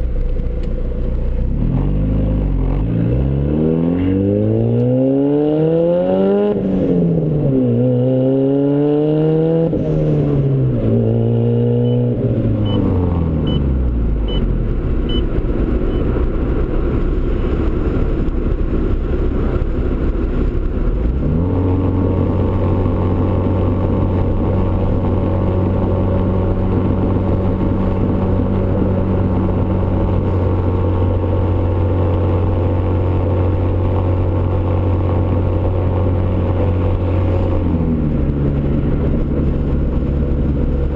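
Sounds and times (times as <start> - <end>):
car engine revving through gears: 1.5 - 13.7.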